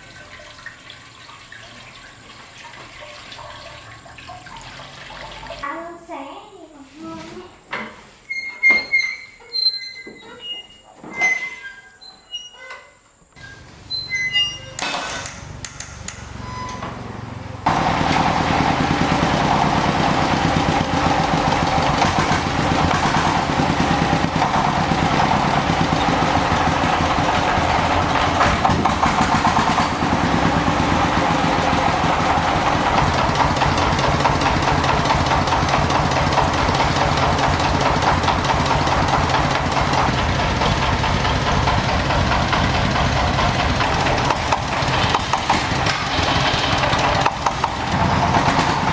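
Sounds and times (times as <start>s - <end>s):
tractor engine idling: 13.4s - 48.9s.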